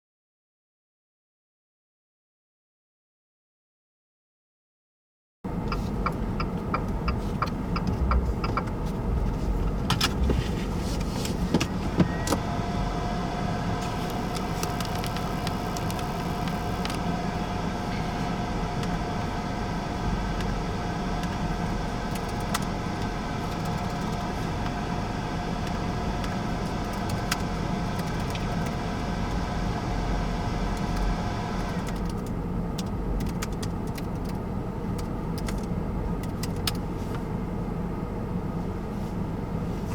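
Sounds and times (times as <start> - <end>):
car engine and road hum: 5.5 - 39.9
faint steady whine: 11.8 - 32.0
clicks: 13.8 - 17.0.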